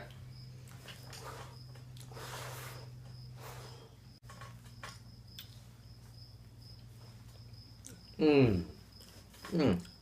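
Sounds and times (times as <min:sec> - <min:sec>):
low electrical hum: 0:00.0 - 0:10.0
soft breaths or blowing: 0:01.2 - 0:04.0.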